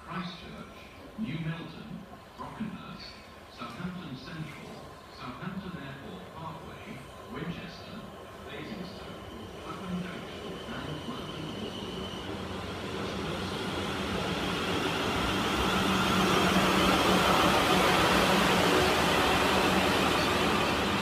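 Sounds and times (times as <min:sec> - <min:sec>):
electric train arriving: 0:04.5 - 0:21.0.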